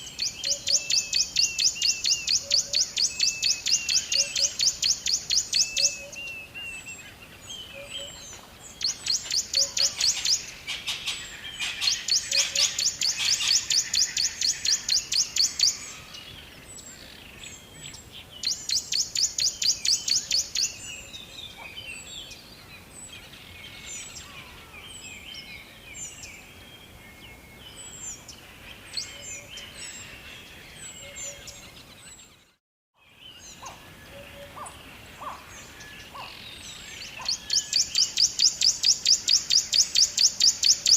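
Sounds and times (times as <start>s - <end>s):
songbirds chirping: 0.0s - 40.9s
bird rapid high chirps: 37.0s - 40.9s.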